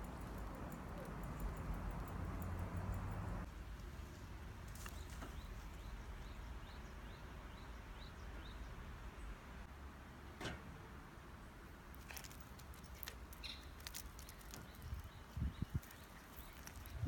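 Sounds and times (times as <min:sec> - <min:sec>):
bird chirping: 0:13.3 - 0:17.0.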